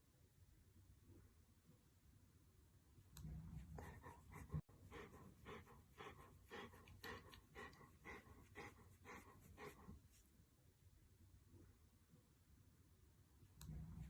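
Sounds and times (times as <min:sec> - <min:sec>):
dog panting: 0:03.4 - 0:10.2.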